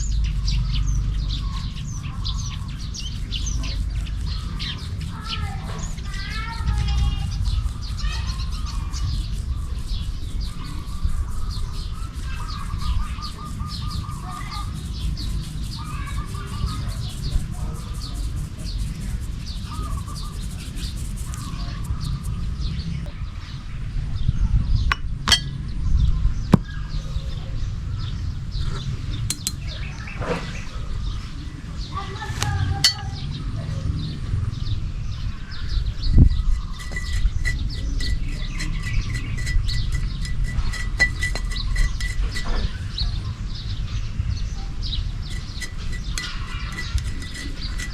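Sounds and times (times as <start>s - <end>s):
steady low rumble: 0.0s - 30.1s
small birds chirping: 0.0s - 47.9s.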